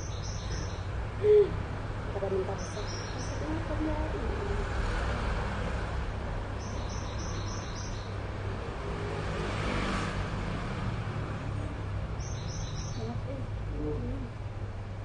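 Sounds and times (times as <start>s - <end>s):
background hum and hiss: 0.0s - 9.6s, 10.2s - 15.0s.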